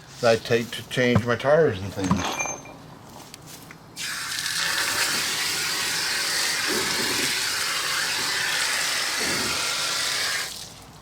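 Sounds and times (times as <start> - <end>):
water spray hissing on brake: 4.0 - 10.9.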